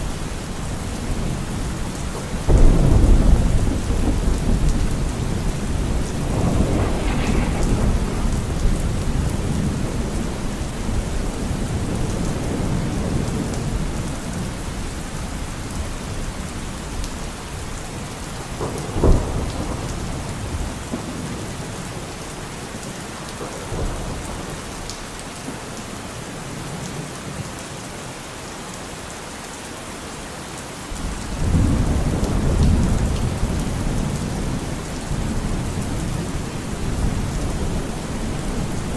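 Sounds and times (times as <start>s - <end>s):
rain falling: 0.0s - 38.9s
thunder rumbling: 0.6s - 14.0s
sharp thunderclap: 2.4s - 13.2s, 18.6s - 21.4s.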